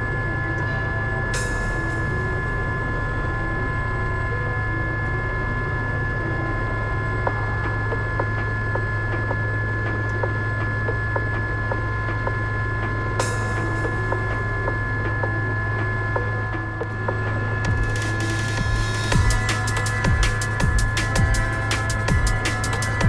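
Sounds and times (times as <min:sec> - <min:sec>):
helicopter cabin drone: 0:00.0 - 0:23.0
high whines: 0:00.0 - 0:23.0
light regular ticking: 0:16.8 - 0:23.0.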